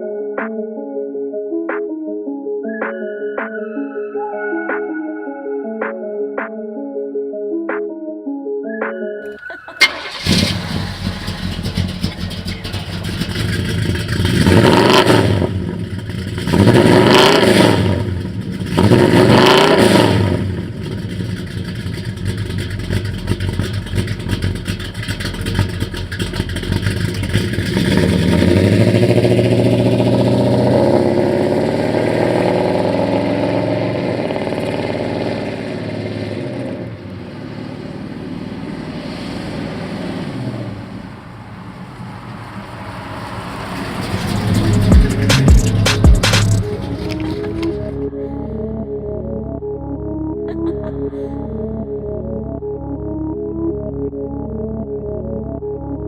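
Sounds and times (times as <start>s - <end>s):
car engine starting and idling: 9.3s - 55.8s
engine revving: 9.8s - 48.1s.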